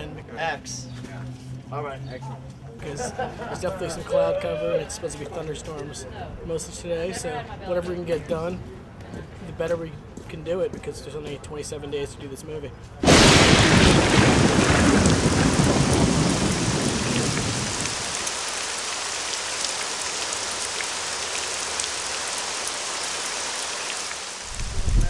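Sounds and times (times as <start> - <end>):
thunder rumble: 13.0 - 18.3, 24.5 - 25.0
rain splashing on pavement: 13.0 - 25.0.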